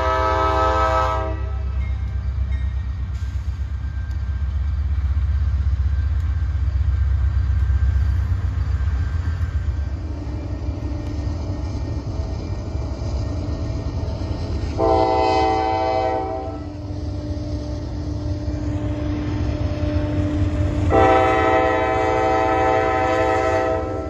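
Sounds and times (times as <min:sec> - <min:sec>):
locomotive air horn: 0:00.0 - 0:01.7, 0:14.8 - 0:24.0
train rumbling over crossing: 0:00.0 - 0:24.0.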